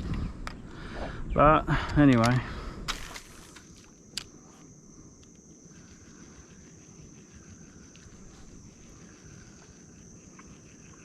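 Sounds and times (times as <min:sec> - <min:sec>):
insects droning: 0:00.0 - 0:11.0
low insect call: 0:00.0 - 0:11.0.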